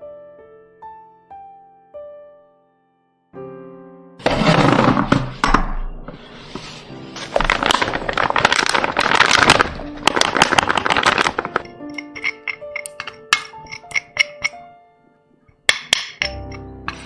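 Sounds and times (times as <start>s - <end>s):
soft piano music: 0.0s - 4.2s, 5.3s - 17.0s
dense crackling and crunching: 7.2s - 12.2s.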